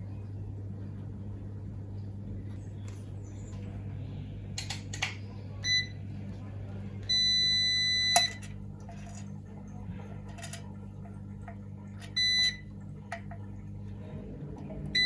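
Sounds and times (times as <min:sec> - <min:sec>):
steady low hum: 0:00.0 - 0:15.0
multimeter buzzer beeping: 0:07.1 - 0:08.5, 0:12.0 - 0:12.7.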